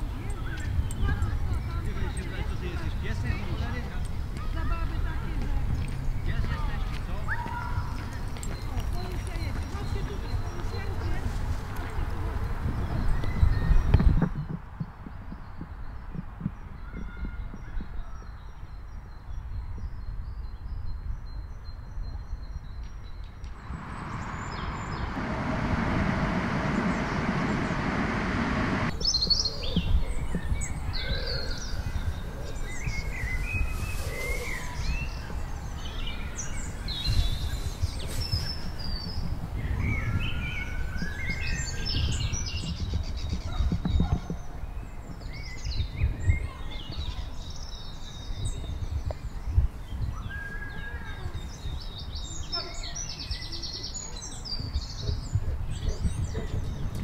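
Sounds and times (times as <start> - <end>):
birds chirping and calling: 0.0 - 20.2, 28.9 - 57.0
steady rushing noise: 23.4 - 31.0
low rumble: 23.4 - 33.1.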